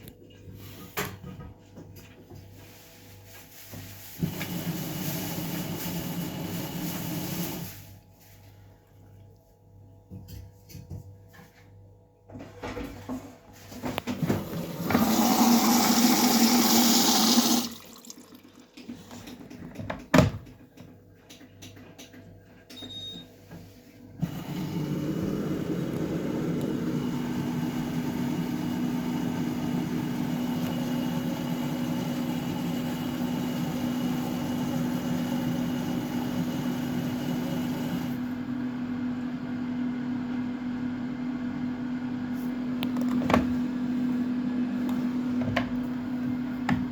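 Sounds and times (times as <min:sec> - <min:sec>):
washing machine low hum: 0:00.0 - 0:46.9
water rushing into washing machine: 0:04.0 - 0:07.9, 0:14.1 - 0:19.2, 0:24.2 - 0:38.3.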